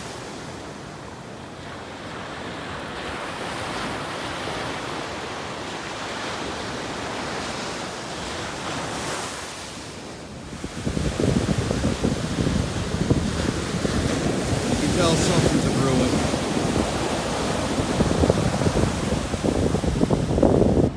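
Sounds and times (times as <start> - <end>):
surf breaking on beach: 2.0 - 20.9
wind on microphone: 10.1 - 20.9.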